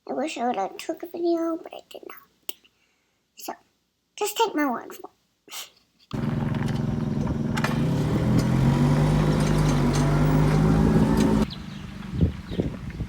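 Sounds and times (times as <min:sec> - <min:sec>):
motor engine running: 0:06.1 - 0:13.0.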